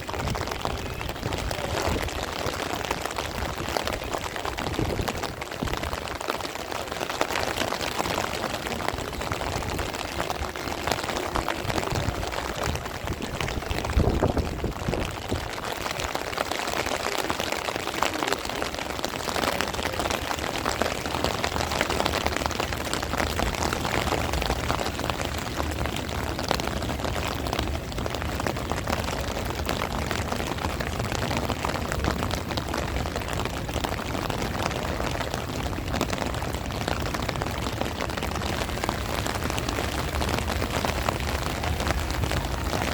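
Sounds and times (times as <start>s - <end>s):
wind gusting on microphone: 0.0s - 6.2s, 8.1s - 16.3s
heavy rain falling: 0.0s - 42.9s.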